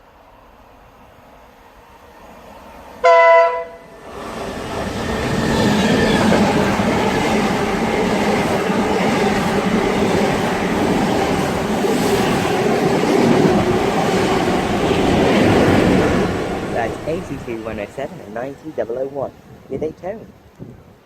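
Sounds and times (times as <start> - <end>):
train wheels rushing on rail: 0.0 - 19.9
train horn blast: 3.0 - 3.9.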